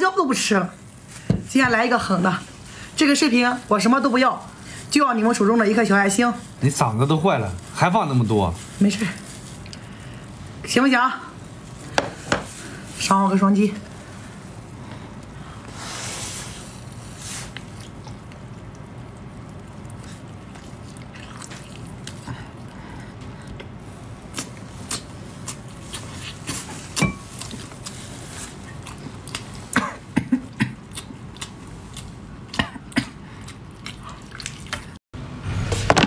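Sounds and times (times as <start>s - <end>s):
wet chewing: 8.5s - 10.6s, 16.9s - 35.0s.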